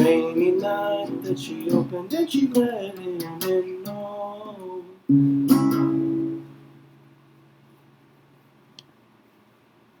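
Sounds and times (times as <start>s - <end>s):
acoustic guitar chord ringing: 0.0s - 7.6s
small click: 8.7s - 9.0s.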